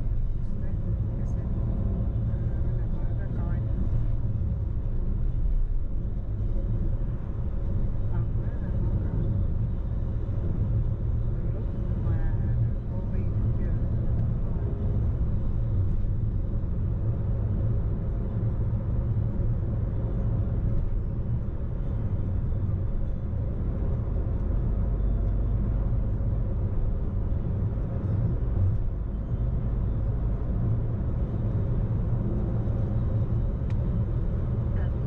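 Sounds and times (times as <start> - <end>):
car interior engine and road noise: 0.0 - 35.0.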